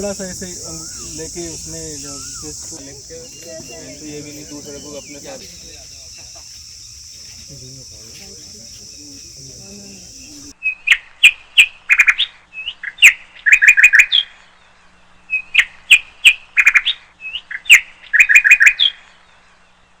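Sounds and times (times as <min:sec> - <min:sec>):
songbird whistling: 0:00.0 - 0:10.5.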